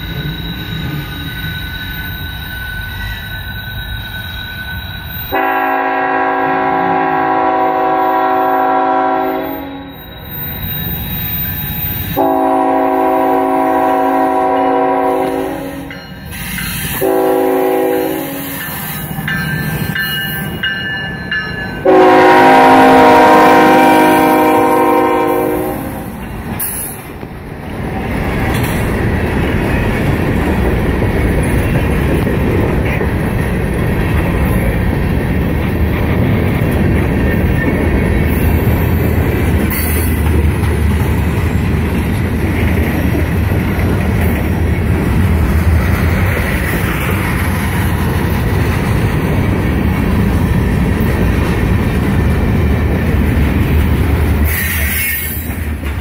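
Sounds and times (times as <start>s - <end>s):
locomotive engines working: 0.0s - 5.6s
locomotive horn blasts: 5.3s - 9.9s, 12.2s - 15.9s, 17.0s - 18.5s, 21.8s - 26.1s
freight cars rumbling and clattering: 26.1s - 54.6s.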